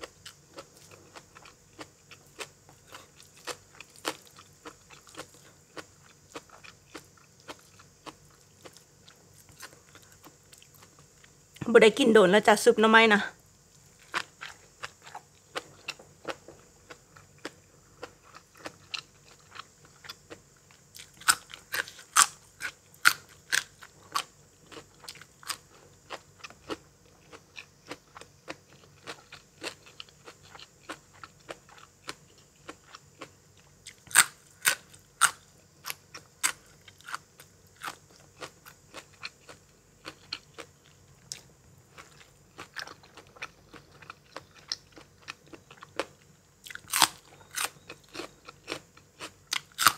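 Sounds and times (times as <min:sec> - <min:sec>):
person crunching crisp food: 0:13.9 - 0:37.2, 0:37.8 - 0:49.9.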